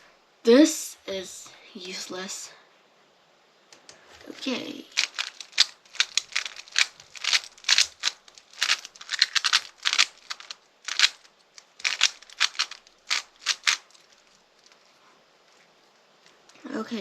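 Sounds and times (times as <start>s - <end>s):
plastic puzzle cube clicking: 4.9s - 14.8s.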